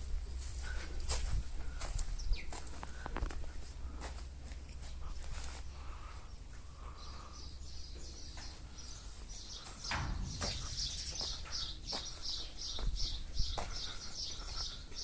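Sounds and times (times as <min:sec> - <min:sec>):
small bird chirping: 0:06.2 - 0:15.0
sharp knocks: 0:09.8 - 0:11.3
low rumble: 0:09.8 - 0:11.9.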